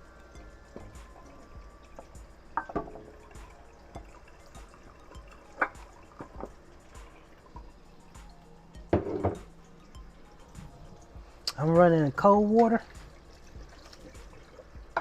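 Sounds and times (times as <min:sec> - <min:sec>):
water dripping off draining pasta: 0:00.0 - 0:08.9, 0:09.5 - 0:15.0
cookware clinking: 0:02.6 - 0:03.3, 0:05.4 - 0:06.6, 0:08.9 - 0:09.6.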